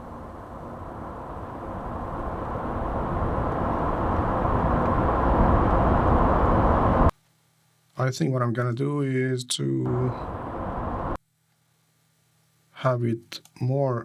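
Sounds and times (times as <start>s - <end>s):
car approaching: 0.0s - 7.1s, 9.9s - 11.2s.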